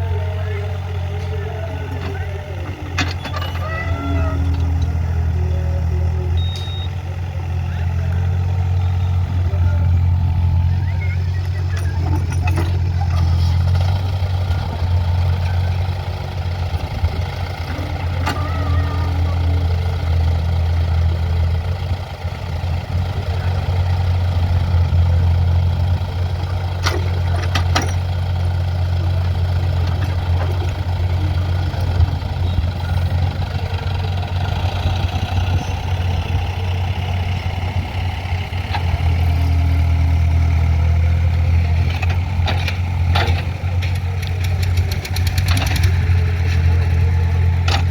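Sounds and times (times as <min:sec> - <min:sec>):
diesel digger engine running: 0:00.0 - 0:47.9.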